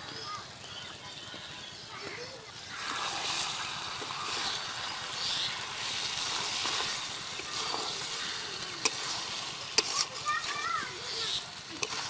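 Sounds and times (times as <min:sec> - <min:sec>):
chicken sizzling in pan: 0:00.1 - 0:12.0
spatula stirring in metal pan: 0:02.6 - 0:12.0.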